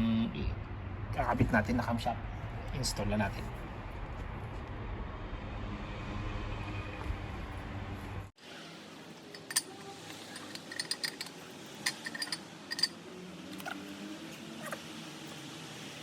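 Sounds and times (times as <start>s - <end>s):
light metallic clinks and taps: 9.3s - 9.7s, 10.3s - 13.0s.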